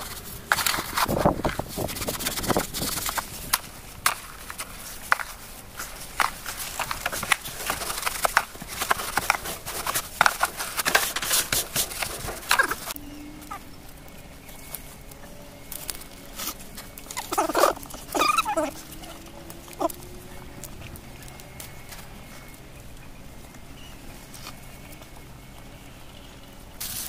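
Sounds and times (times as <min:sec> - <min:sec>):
puppies scuffling: 0:00.0 - 0:25.7
puppy yelps: 0:17.2 - 0:19.2.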